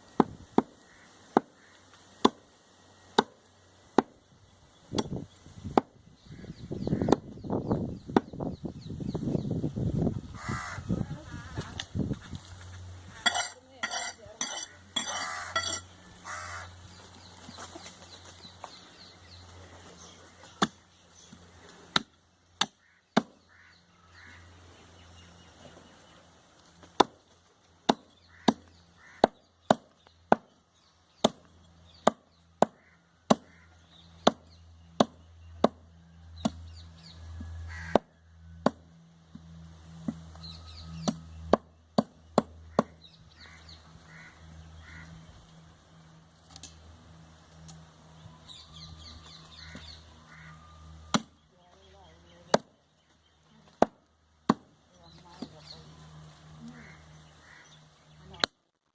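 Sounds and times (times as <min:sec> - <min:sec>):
cleaver chopping meat on wood: 0:21.9 - 0:23.4, 0:27.8 - 0:30.5, 0:31.2 - 0:33.6, 0:34.2 - 0:35.8, 0:37.8 - 0:38.8, 0:41.0 - 0:43.0, 0:51.1 - 0:51.4, 0:52.4 - 0:52.7, 0:53.7 - 0:54.7.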